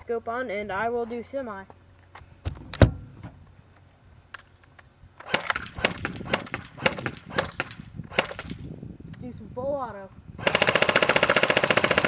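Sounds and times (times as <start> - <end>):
airsoft gun shots: 5.2 - 8.6.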